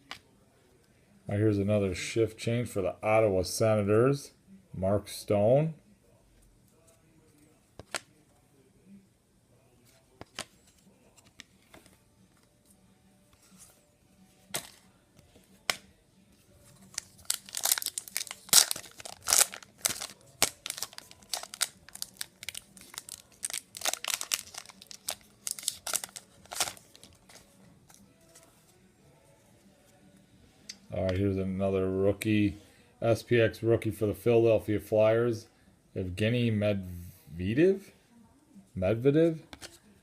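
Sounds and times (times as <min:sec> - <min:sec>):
plastic wrapper tearing and crinkling: 0:16.9 - 0:27.3.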